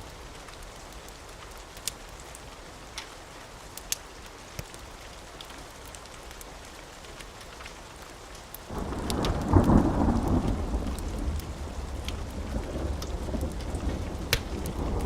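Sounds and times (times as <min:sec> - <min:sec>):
steady rain: 0:00.0 - 0:15.0
thunder rumble: 0:08.7 - 0:15.0.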